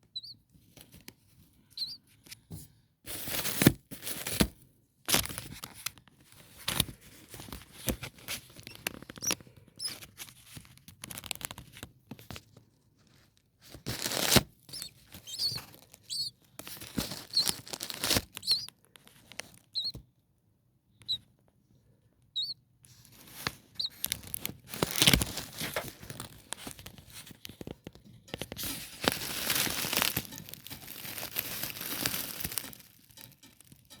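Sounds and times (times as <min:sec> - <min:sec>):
faint high nestling peeps: 0:00.0 - 0:00.5, 0:01.6 - 0:02.2, 0:08.4 - 0:10.2, 0:13.9 - 0:20.0, 0:20.9 - 0:21.4, 0:22.2 - 0:34.0
rustling and crinkling in nest: 0:00.2 - 0:20.1, 0:22.4 - 0:34.0.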